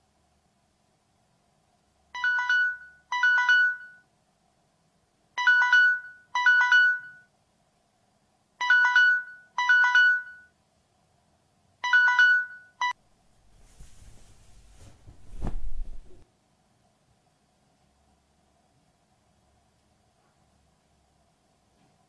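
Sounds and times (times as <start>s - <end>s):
mobile phone ringtone: 2.2s - 4.0s, 5.4s - 7.3s, 8.6s - 10.6s, 11.8s - 13.0s.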